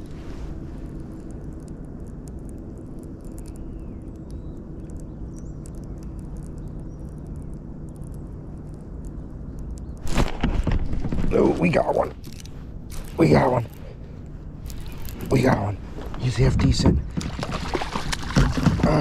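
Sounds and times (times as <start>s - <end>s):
faint ticks: 0.0s - 10.0s
creek low rumble: 0.0s - 19.0s
faint bird chirps: 3.0s - 10.0s.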